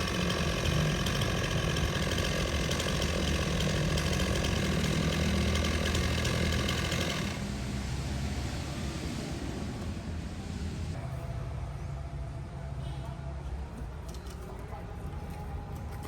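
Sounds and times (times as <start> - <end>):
chainsaw engine running: 0.0 - 7.4.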